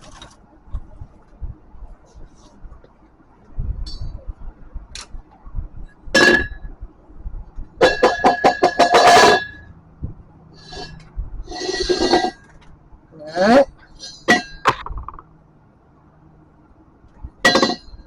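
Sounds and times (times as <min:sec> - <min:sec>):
metal clinking and ringing: 0:10.6 - 0:12.6, 0:17.4 - 0:18.0.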